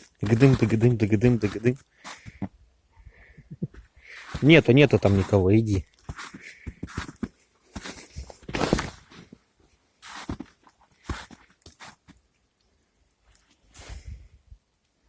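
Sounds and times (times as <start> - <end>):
footsteps crunching in snow: 0.0 - 2.5, 4.0 - 9.4, 10.0 - 12.2.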